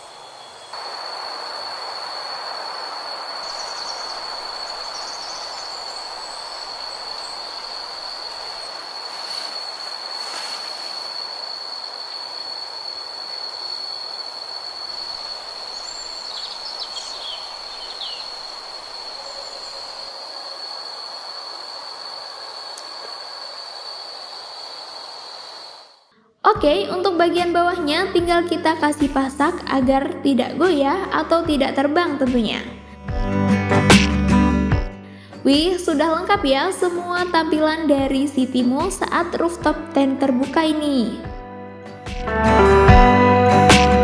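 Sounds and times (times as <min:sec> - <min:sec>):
even hiss: 0:00.0 - 0:26.1
high-pitched insect drone: 0:00.0 - 0:26.1
bird chirps: 0:03.5 - 0:09.6, 0:15.0 - 0:20.1.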